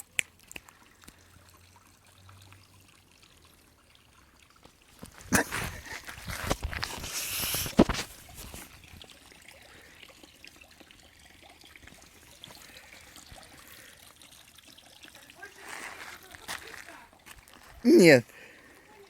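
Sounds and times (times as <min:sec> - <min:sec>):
water splashing and trickling: 0:00.0 - 0:19.0.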